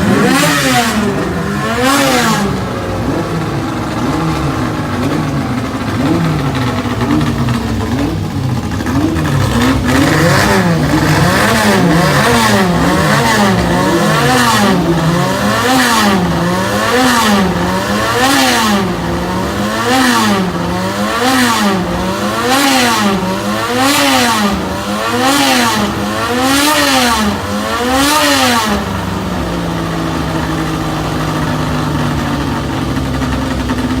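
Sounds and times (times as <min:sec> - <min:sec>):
engine idling: 0:00.0 - 0:34.0
racing engine revving: 0:00.0 - 0:34.0.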